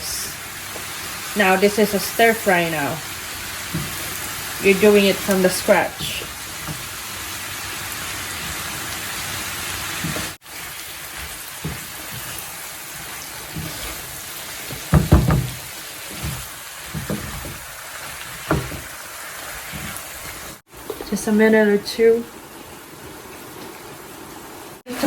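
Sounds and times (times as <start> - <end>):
vegetables sizzling in a pan: 0.0 - 25.0
utensil knocking against pan: 14.7 - 16.4.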